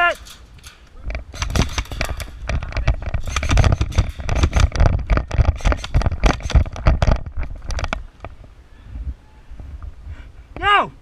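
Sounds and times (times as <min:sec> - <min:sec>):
clatter of knocks and thumps: 0:00.2 - 0:08.4.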